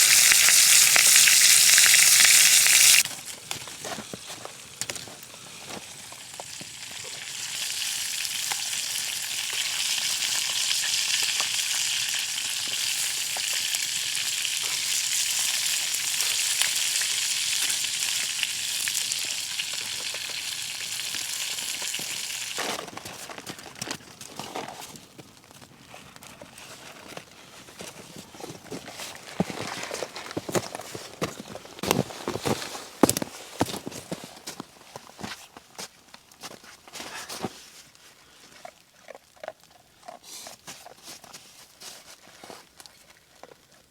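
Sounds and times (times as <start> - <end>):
food sizzling over fire: 0.0 - 22.8
faint crackles and ticks: 0.0 - 43.9.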